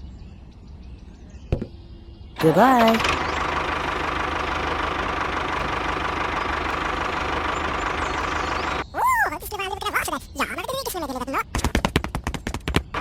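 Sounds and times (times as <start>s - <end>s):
engine idling with knocking chug: 2.4s - 8.8s.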